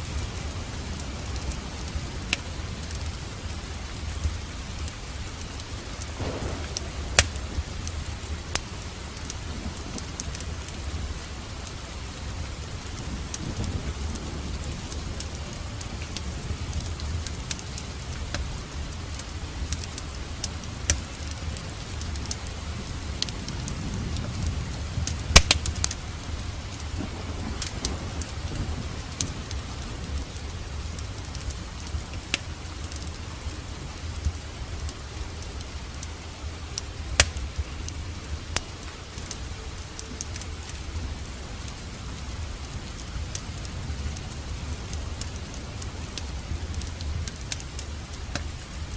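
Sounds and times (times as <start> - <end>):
steady rain: 0.0 - 48.9
wood fire crackling: 0.0 - 48.9
low rumble: 6.2 - 12.2.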